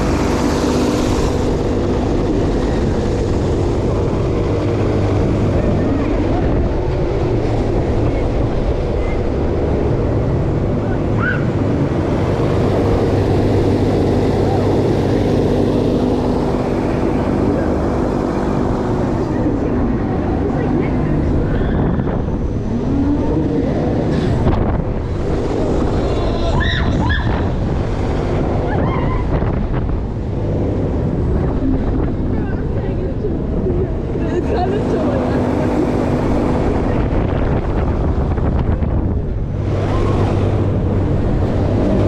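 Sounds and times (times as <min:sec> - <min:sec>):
fairground ride mechanical hum: 0:00.0 - 0:42.0
wind buffeting microphone: 0:00.0 - 0:42.0.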